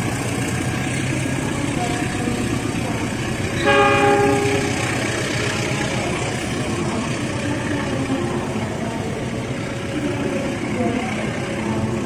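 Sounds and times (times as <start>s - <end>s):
train coaches rumbling past: 0.0s - 12.0s
train horn blast: 3.6s - 5.0s.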